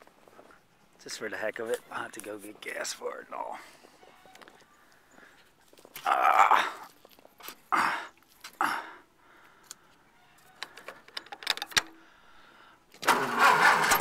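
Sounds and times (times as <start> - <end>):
metallic clicks and clatter: 10.6 - 12.0.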